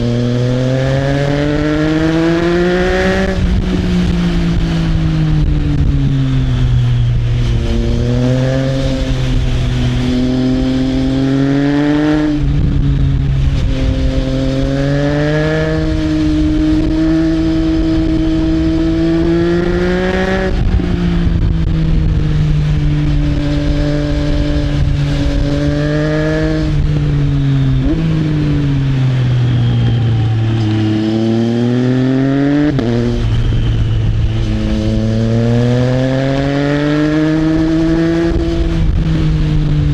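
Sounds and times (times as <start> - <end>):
motorcycle engine revving through gears: 0.0 - 39.9
wind rush: 0.0 - 39.9.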